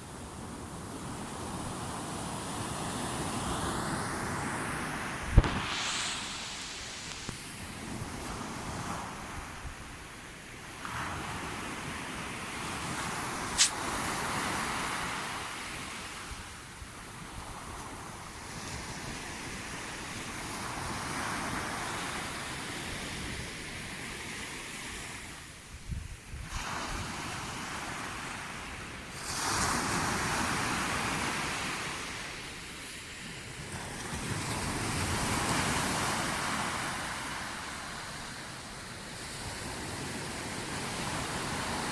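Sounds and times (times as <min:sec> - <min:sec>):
waves washing onto shore: 0:00.0 - 0:41.9
wind on microphone: 0:01.6 - 0:10.0
sharp click: 0:13.6 - 0:13.8.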